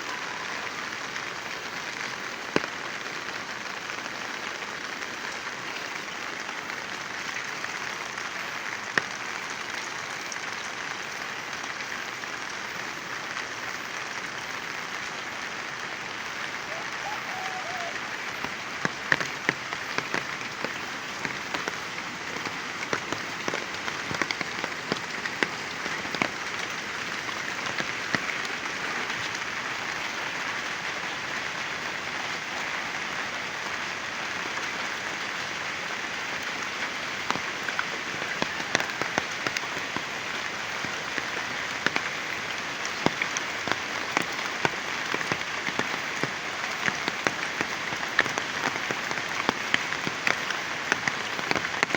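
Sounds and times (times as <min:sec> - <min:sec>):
heavy rain falling: 0:00.0 - 0:51.9.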